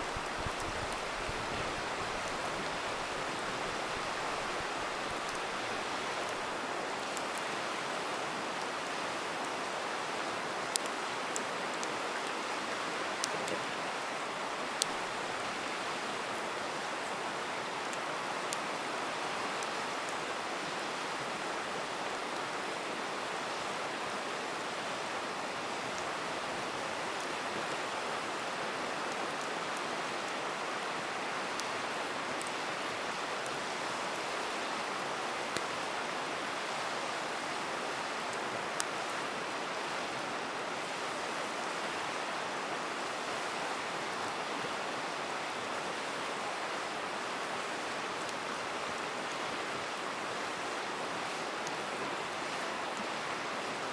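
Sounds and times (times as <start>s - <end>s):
campfire popping and crackling: 0.0s - 8.0s
river water rushing: 0.0s - 53.9s.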